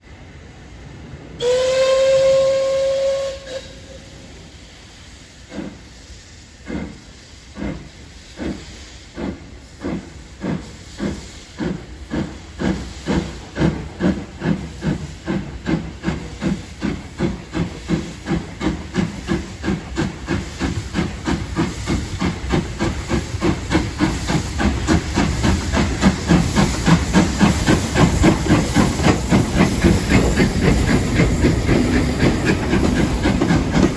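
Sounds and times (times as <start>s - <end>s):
steam hissing: 0.2s - 33.9s
steam locomotive whistle: 1.4s - 4.3s
steam locomotive exhaust chuffs: 1.4s - 33.9s.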